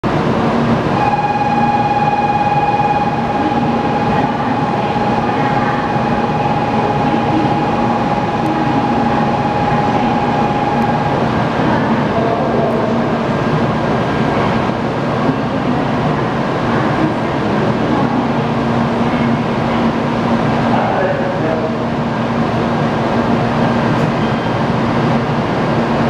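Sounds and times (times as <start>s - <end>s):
station hum: 0.0s - 26.0s
train equipment running: 0.0s - 26.0s
steady high tone: 0.9s - 14.8s.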